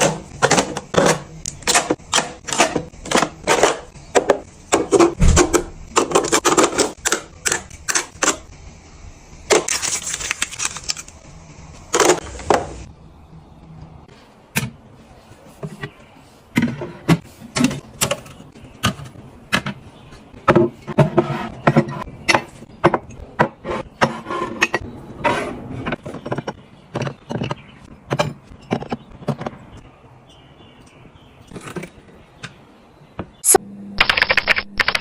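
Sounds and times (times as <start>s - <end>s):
containers clicking and knocking: 0.0s - 8.4s.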